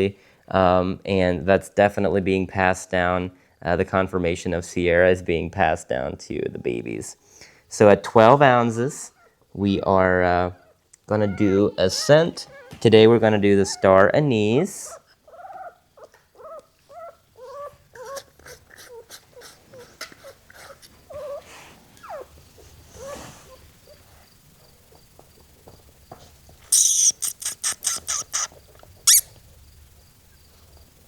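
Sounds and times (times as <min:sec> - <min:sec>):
puppy whimpering and squeaking: 0:10.6 - 0:24.0, 0:26.7 - 0:29.4.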